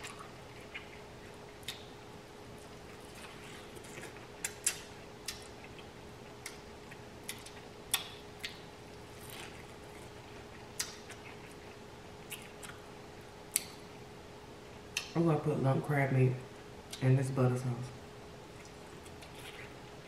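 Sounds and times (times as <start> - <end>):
chewing corn on the cob: 0.0 - 12.9, 18.5 - 20.0
faint steady hum: 0.0 - 20.0.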